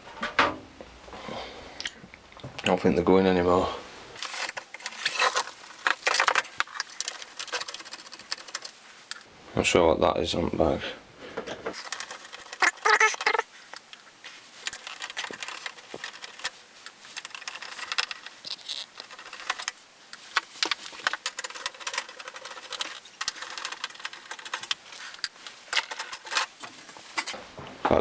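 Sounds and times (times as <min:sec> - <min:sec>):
hands handling plastic parts: 0:04.2 - 0:09.3, 0:11.7 - 0:27.4.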